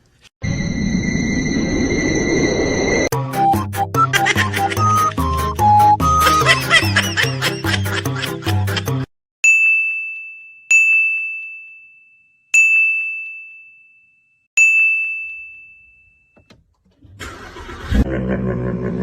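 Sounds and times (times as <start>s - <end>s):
small high-pitched bell ringing: 9.4s - 16.4s.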